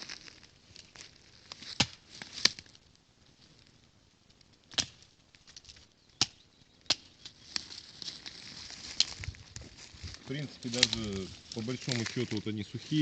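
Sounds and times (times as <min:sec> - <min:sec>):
blade chopping branches: 0:04.7 - 0:05.0.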